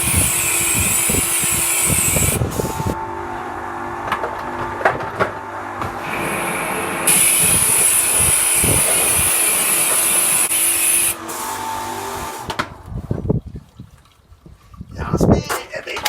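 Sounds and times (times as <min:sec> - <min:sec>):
compressed air hissing: 0:00.0 - 0:03.0, 0:06.0 - 0:12.5.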